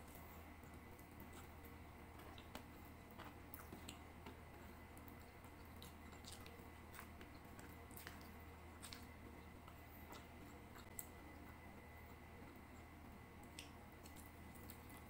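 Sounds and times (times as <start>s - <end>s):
close-up chewing: 0.0s - 15.0s
steady low hum: 0.0s - 15.0s.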